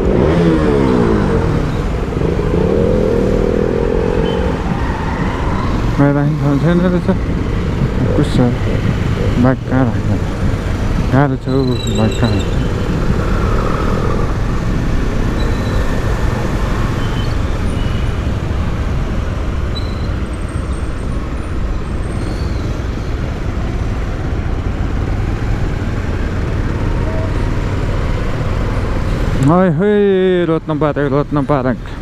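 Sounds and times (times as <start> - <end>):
motorcycle engine riding: 0.0 - 19.6
traffic noise: 0.0 - 32.0.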